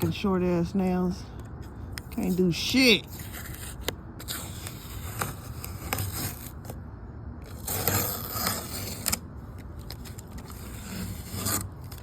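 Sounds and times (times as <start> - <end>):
tape tearing: 3.1 - 6.8, 7.4 - 9.2, 9.8 - 12.0.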